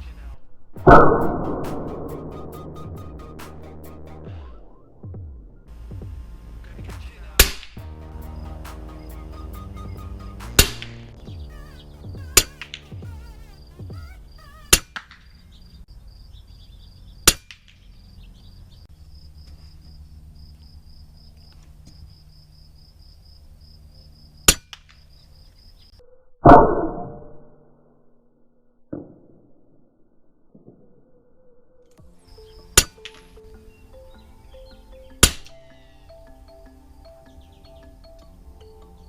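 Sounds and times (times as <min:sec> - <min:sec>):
background music: 0:00.8 - 0:14.8, 0:32.0 - 0:39.0.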